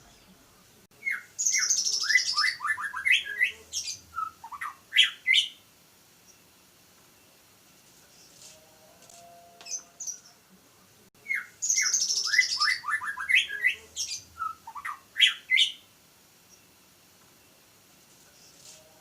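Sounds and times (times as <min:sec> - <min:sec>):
songbird singing whistles: 0:01.0 - 0:05.6, 0:11.2 - 0:15.9.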